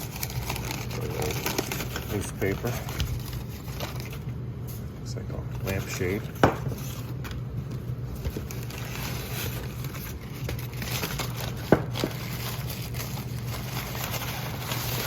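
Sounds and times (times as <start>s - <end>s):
newspaper rustling and crinkling: 0.0s - 4.4s, 5.3s - 15.0s
steady low hum: 0.0s - 15.0s.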